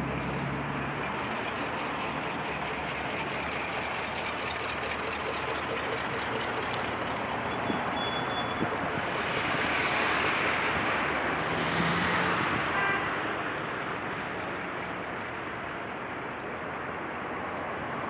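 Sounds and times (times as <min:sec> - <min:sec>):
diesel engine running: 0:00.0 - 0:11.5.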